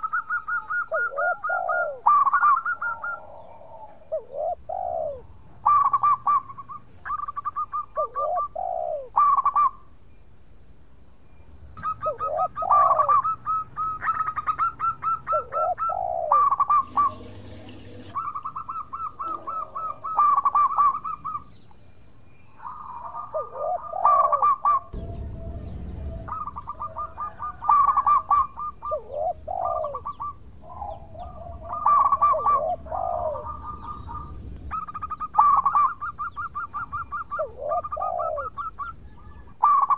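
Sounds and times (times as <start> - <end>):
dove cooing: 0.0 - 9.8, 11.8 - 21.6, 22.6 - 39.9
low rumble: 24.9 - 31.8.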